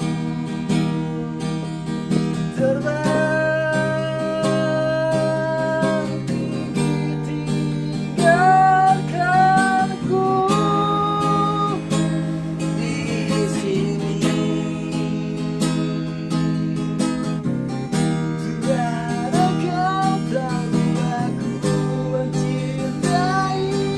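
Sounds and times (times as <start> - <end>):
plucked strings: 0.0 - 23.9
person singing long held notes: 2.4 - 15.8, 18.6 - 23.9.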